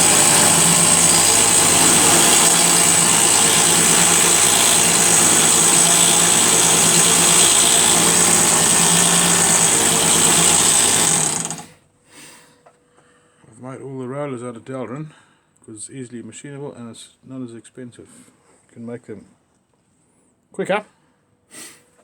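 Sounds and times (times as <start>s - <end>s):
abrasive belt hissing: 0.0s - 11.7s
belt grinder motor hum: 0.0s - 11.7s.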